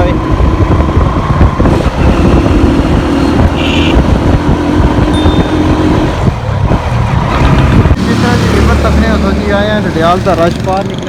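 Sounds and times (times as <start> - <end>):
traffic engines rumbling: 0.0 - 11.0
brief high-pitched tone: 5.1 - 6.0.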